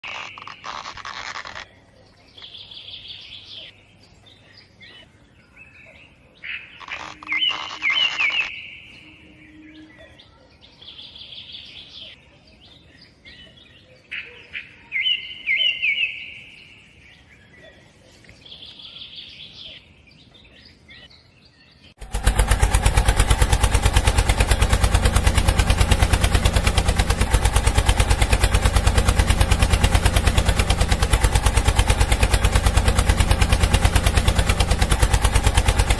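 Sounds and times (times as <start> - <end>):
birds chirping: 0.0 - 35.9
flour mill motor rattling: 22.0 - 35.9.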